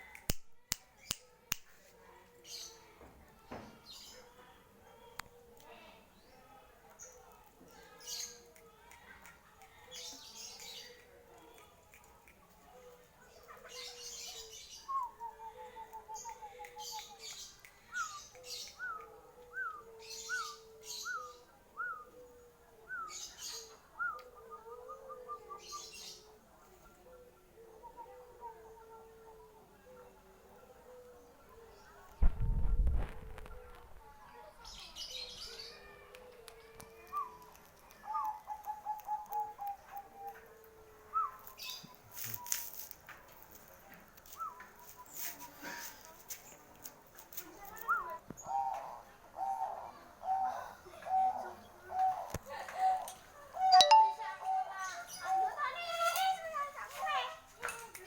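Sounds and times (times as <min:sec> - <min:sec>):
brief rustle: 0:41.4 - 0:48.0
bird trill: 0:53.6 - 0:54.6.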